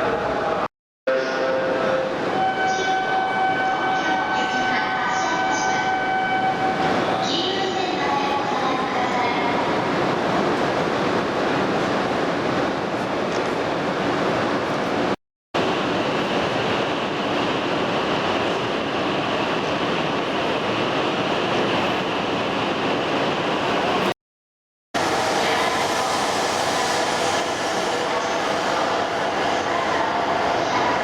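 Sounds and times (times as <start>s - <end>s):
train rolling and air rush: 5.9s - 24.2s, 25.0s - 31.0s.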